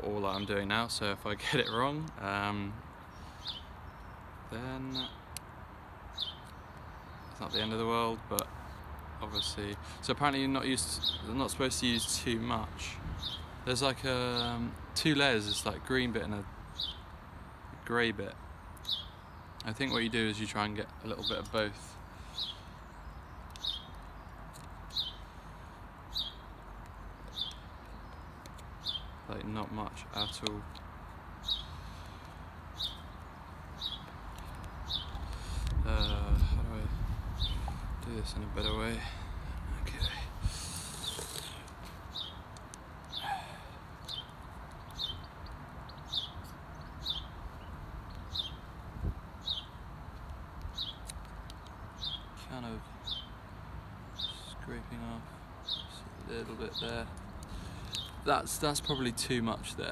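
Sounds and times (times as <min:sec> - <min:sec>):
small bird chirping: 0:06.1 - 0:08.8, 0:13.2 - 0:13.6, 0:18.3 - 0:25.3, 0:26.1 - 0:39.0, 0:39.6 - 0:48.7, 0:50.6 - 0:59.9
low wind rush: 0:11.6 - 0:17.9, 0:29.9 - 0:52.4
wind rumble on microphone: 0:34.6 - 0:40.9, 0:47.0 - 0:49.3.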